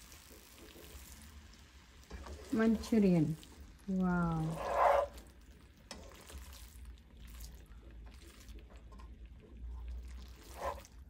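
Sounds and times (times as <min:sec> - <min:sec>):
food sizzling and bubbling in a wok: 0:00.0 - 0:11.0.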